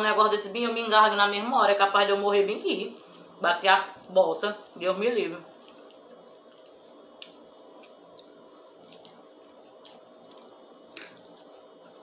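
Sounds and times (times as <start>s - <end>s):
spaghetti being chewed: 2.9s - 12.0s
wet mouth clicks: 9.8s - 11.5s.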